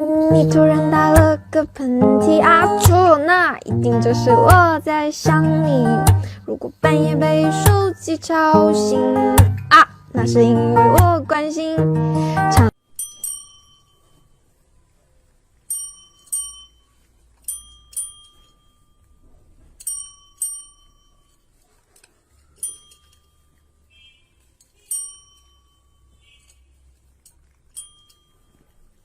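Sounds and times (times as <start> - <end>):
soft jingle: 12.7 - 29.0
small metal bell dinging: 12.8 - 14.5, 15.6 - 21.5, 22.5 - 24.2, 24.8 - 26.7, 27.7 - 29.0.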